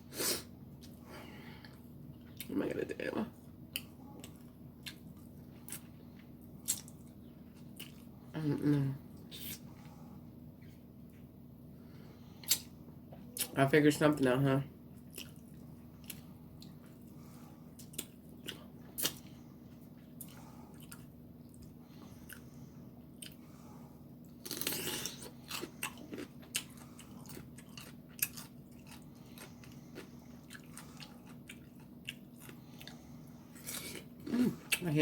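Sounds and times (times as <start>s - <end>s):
faint steady hum: 0.0s - 35.0s
chewing and biting food: 3.7s - 8.2s, 14.9s - 23.5s, 24.2s - 34.9s
loud food crunch: 24.2s - 34.8s.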